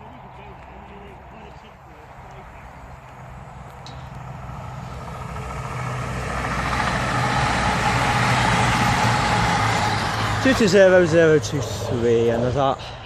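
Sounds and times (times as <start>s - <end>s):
diesel train approaching: 0.0s - 13.0s
steady low hum: 0.0s - 13.0s.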